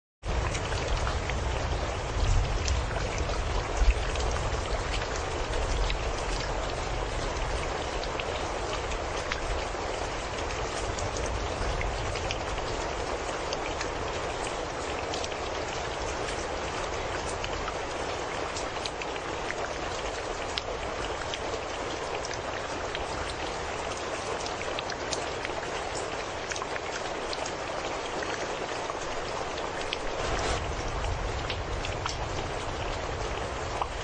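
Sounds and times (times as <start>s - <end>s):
raindrops ticking on surface: 0.2s - 34.0s
rain hissing: 29.2s - 34.0s.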